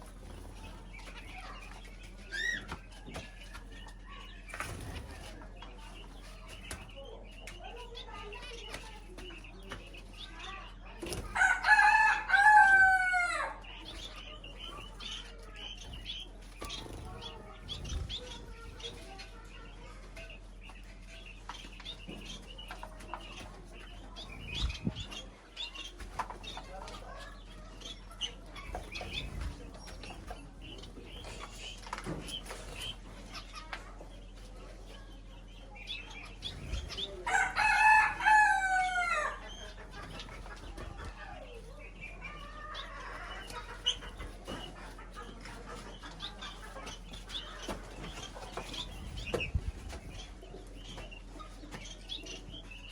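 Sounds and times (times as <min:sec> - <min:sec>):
clucks and chirps: 0:00.0 - 0:52.9
rooster crowing: 0:11.4 - 0:13.6, 0:37.2 - 0:39.4.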